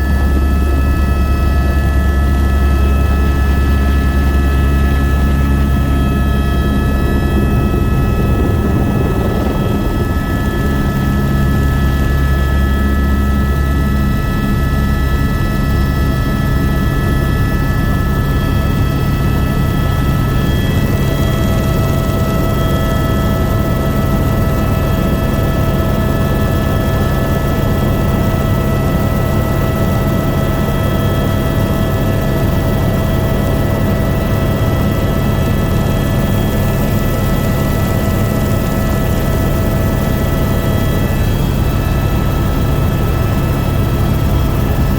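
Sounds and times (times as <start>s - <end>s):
helicopter rotor and engine drone: 0.0s - 44.9s.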